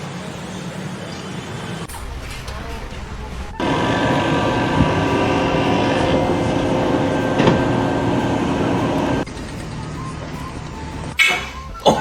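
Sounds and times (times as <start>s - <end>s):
loud machine noise: 1.9s - 11.2s
held tones: 3.5s - 11.9s.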